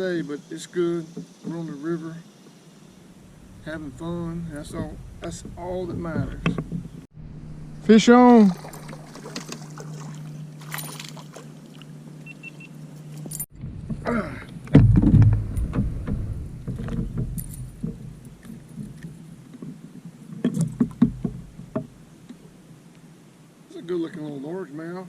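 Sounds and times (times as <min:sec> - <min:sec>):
low thumps: 0:03.1 - 0:09.6, 0:13.5 - 0:19.0, 0:20.4 - 0:22.0
knocks and rattles in a canoe: 0:03.2 - 0:07.1, 0:08.2 - 0:11.6, 0:13.2 - 0:22.6.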